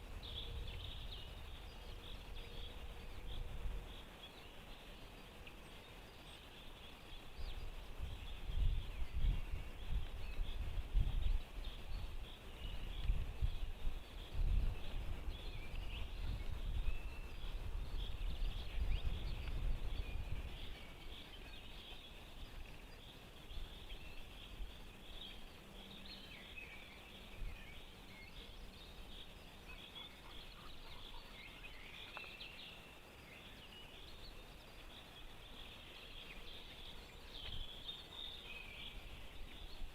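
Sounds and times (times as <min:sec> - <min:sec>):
songbirds chirping and singing: 0:00.0 - 0:39.9
low rumbling gusts: 0:06.8 - 0:21.6.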